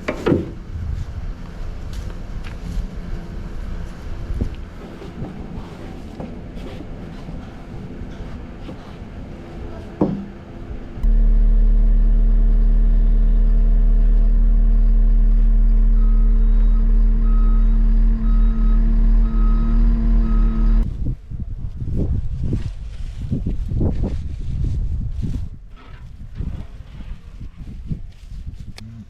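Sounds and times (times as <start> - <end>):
skid loader engine humming: 0.0 - 20.8
reversing alarm beeps: 16.0 - 20.8.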